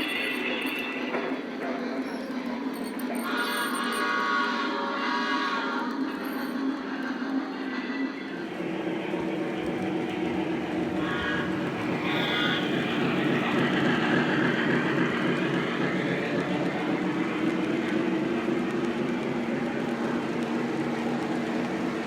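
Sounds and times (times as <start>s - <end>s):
model train wheels rattling on rail: 9.2s - 22.0s.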